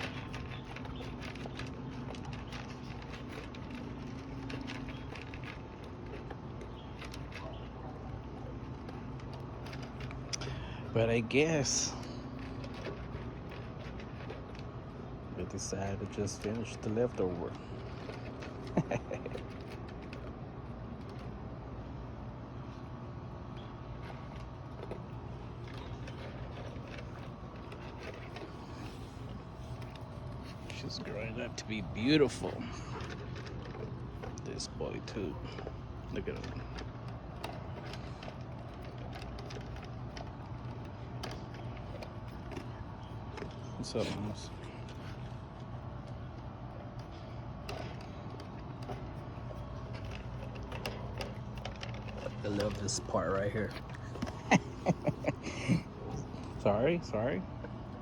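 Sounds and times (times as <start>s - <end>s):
dogs crunching dry kibble: 0.0s - 58.0s
steady low hum: 0.0s - 58.0s.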